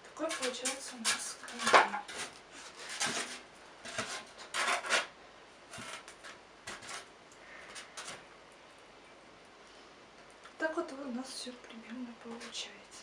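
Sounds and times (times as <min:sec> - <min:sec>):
foam blocks scraping together: 0:00.2 - 0:05.1, 0:05.7 - 0:07.1.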